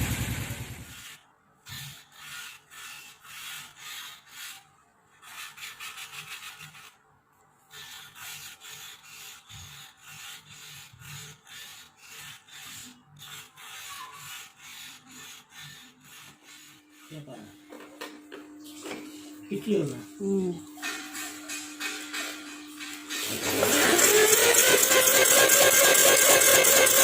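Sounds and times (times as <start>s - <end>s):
rasping abrasive strokes: 7.6s - 17.5s, 20.7s - 27.0s.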